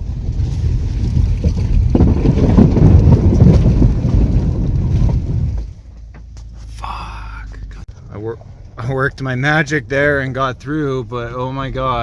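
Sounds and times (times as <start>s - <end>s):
water splashing against vehicle: 0.0s - 6.9s
low vehicle rumble: 0.0s - 12.0s.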